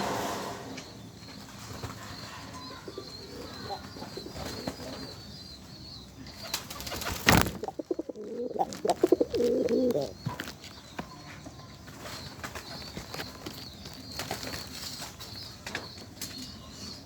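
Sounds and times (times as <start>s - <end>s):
pigeon cooing: 1.8s - 5.2s, 7.0s - 10.5s
sharp loud rustle: 7.0s - 10.0s.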